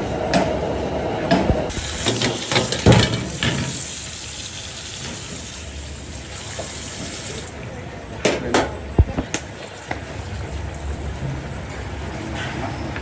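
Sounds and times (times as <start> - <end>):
water running from a tap: 1.7 - 7.5.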